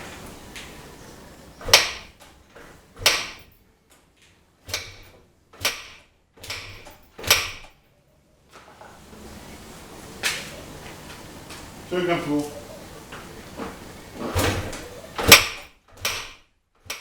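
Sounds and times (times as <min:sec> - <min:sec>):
motorcycle kickstarter stamped: 0:01.6 - 0:03.6, 0:04.7 - 0:07.8, 0:13.6 - 0:17.0.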